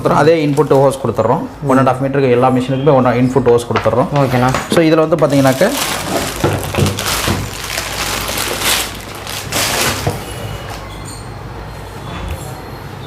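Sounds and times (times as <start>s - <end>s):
plastic appliance handling noise: 3.8s - 10.8s.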